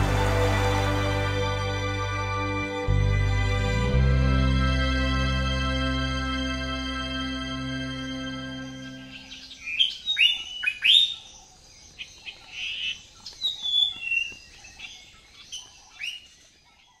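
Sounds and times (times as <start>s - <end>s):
wild birds calling: 8.9s - 17.0s.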